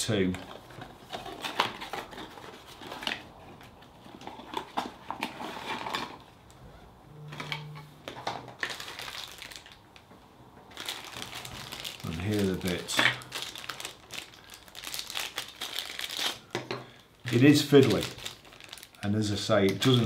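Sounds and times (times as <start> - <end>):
brief low hum: 6.8 - 8.0
plastic packaging crinkling: 7.4 - 10.0, 10.7 - 20.0.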